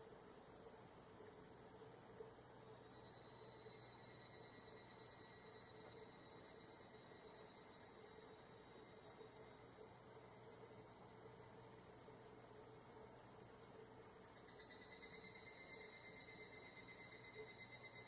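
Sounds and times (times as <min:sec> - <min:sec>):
cicada chorus: 0:00.1 - 0:18.0
pulsing cicada call: 0:14.0 - 0:18.0.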